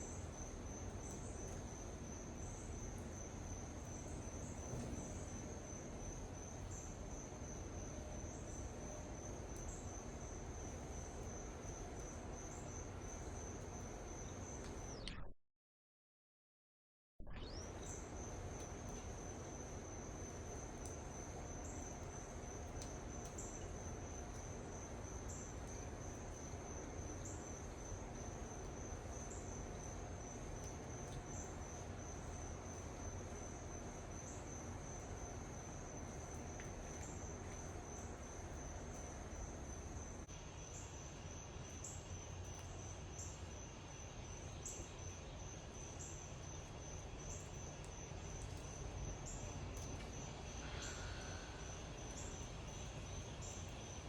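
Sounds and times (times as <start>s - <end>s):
insects trilling: 17.7s - 54.0s.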